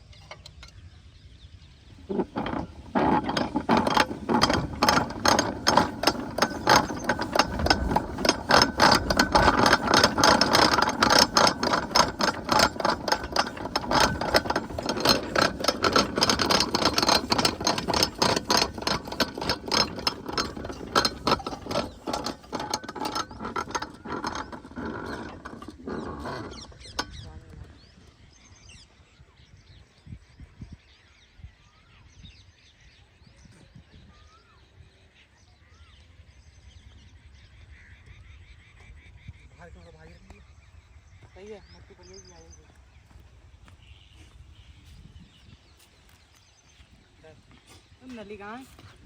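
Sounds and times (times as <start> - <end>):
diesel engine knocking: 2.0 - 27.4.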